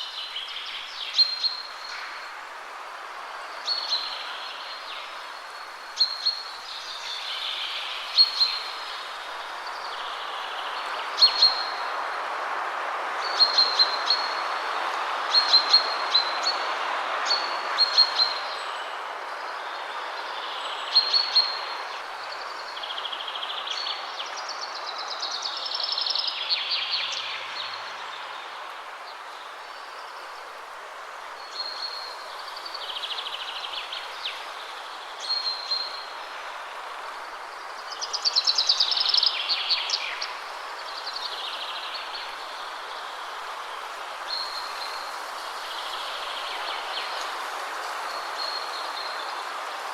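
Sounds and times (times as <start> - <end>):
wind rushing through trees: 0.0 - 49.9
songbirds chirping and warbling: 15.3 - 49.9.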